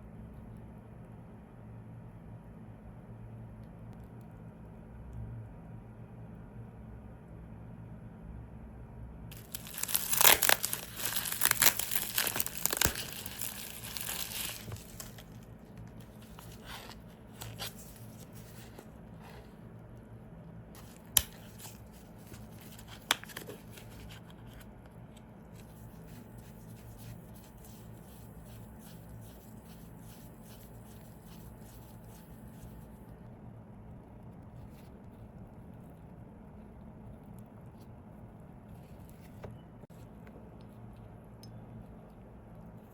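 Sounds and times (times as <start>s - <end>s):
crinkling and tearing: 9.3s - 18.9s, 20.8s - 24.7s.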